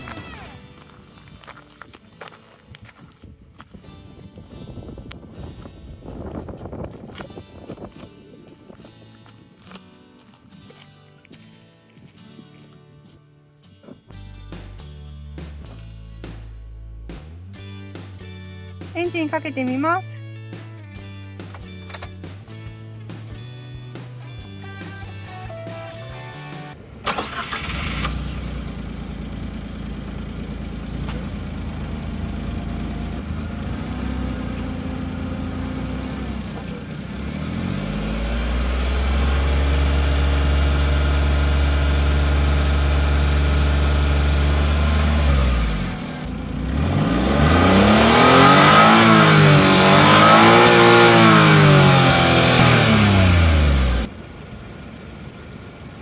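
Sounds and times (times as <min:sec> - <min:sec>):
van engine idling and revving: 0:00.0 - 0:03.8, 0:14.1 - 0:18.9, 0:21.0 - 0:56.0.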